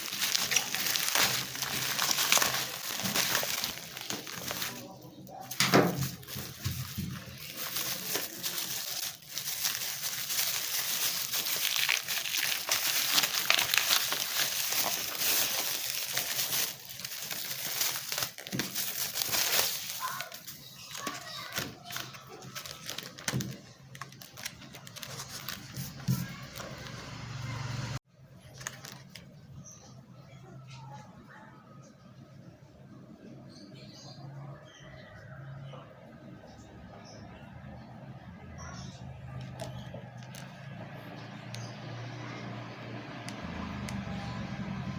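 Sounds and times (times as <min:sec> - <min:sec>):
plastic packaging crinkling: 0:00.0 - 0:27.4, 0:28.4 - 0:29.4, 0:38.8 - 0:44.9.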